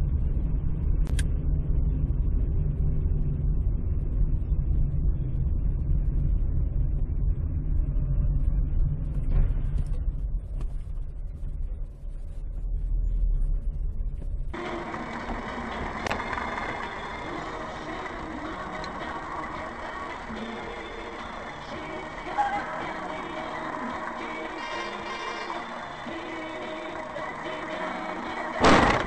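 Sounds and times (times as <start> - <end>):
car engine rumble: 0.0 - 29.0
road noise: 14.6 - 29.0.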